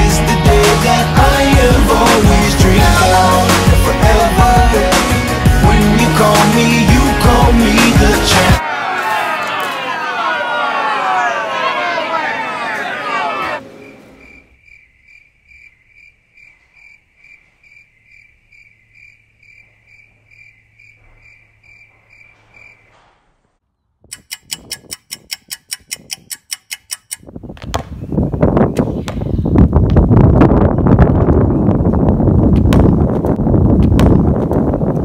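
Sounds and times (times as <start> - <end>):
cricket chirping: 13.8 - 23.0
rapid sharp clicks: 24.1 - 27.2.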